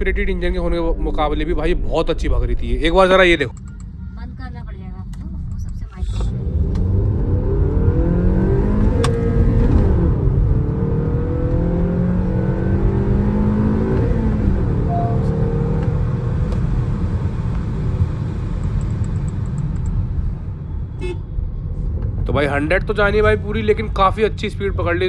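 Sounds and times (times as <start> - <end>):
car engine accelerating hard: 6.0 - 19.3.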